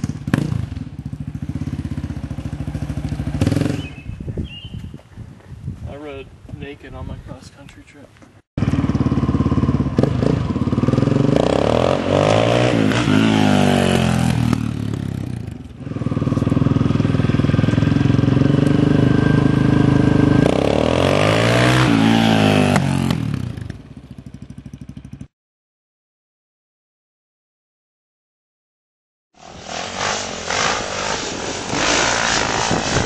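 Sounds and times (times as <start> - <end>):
dirt bike engine revving: 0.0 - 4.1, 8.6 - 23.8, 29.4 - 33.0.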